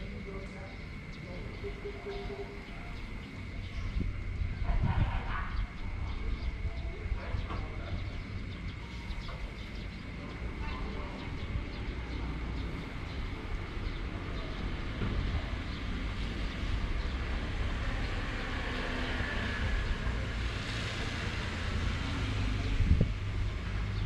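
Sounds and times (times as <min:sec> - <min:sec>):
wind gusting: 0:00.0 - 0:24.0
heavy rain: 0:12.2 - 0:23.9.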